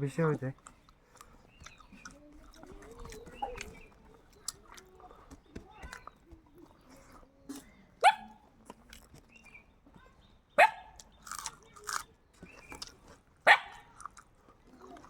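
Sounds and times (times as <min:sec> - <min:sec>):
soft dog noises: 0:00.3 - 0:11.1
dog barking: 0:08.0 - 0:08.4, 0:10.6 - 0:11.0, 0:13.4 - 0:13.9.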